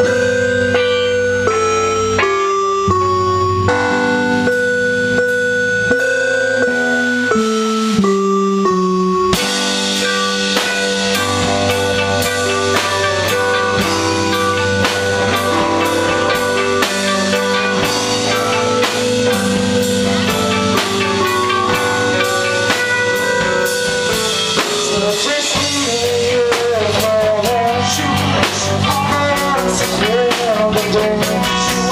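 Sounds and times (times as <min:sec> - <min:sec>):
drum kit beat: 0:00.0 - 0:31.9
guitar: 0:00.0 - 0:31.9
person singing: 0:10.2 - 0:31.9.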